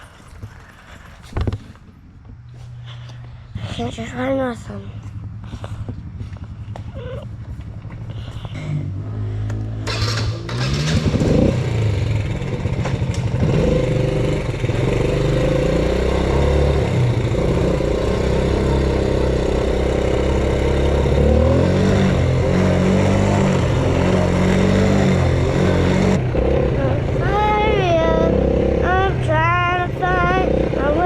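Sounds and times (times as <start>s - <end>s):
quad engine revving: 8.1s - 31.0s.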